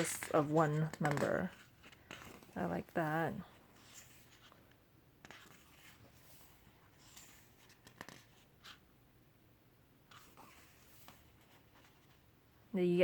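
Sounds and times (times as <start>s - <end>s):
photo book pages turning: 0.0s - 8.9s, 10.1s - 12.3s.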